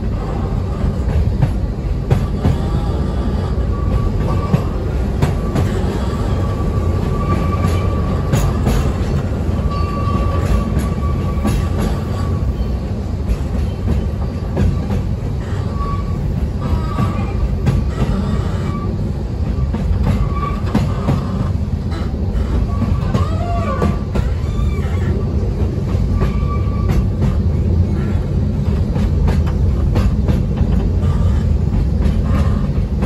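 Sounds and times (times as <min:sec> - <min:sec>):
train low rumble: 0:00.0 - 0:33.0
wheels clicking on rails: 0:00.0 - 0:33.0
high wheel squeal: 0:02.4 - 0:09.0, 0:09.6 - 0:12.8, 0:14.8 - 0:25.3, 0:26.1 - 0:27.0.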